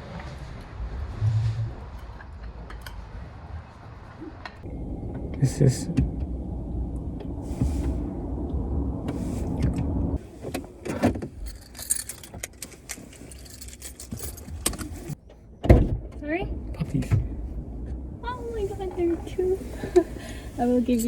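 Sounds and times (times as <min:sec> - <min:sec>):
car rumble: 0:00.0 - 0:21.0
light metallic jingling: 0:11.4 - 0:15.2, 0:20.6 - 0:21.0.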